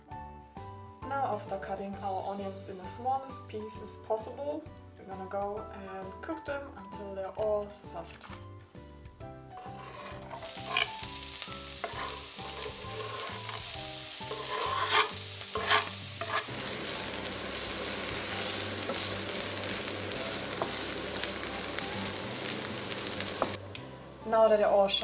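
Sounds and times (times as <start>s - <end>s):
onions sizzling in a pan: 9.6s - 25.0s.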